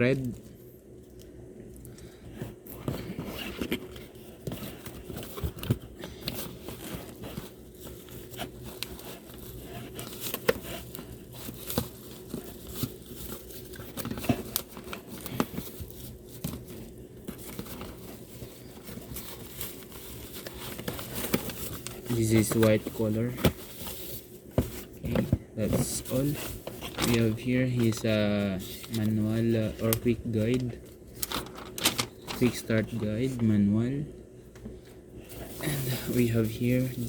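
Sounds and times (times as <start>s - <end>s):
plastic packaging crinkling: 25.8s - 33.4s.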